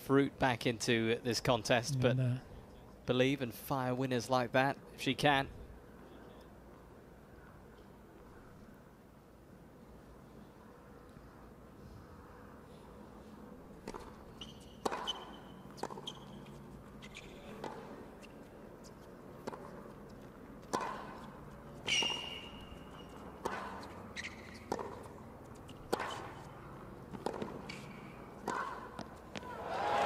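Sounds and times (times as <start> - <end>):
racket striking tennis ball: 13.8 - 17.9, 20.6 - 26.4, 27.0 - 29.5
sneakers squeaking on court: 14.3 - 17.5, 21.8 - 26.4.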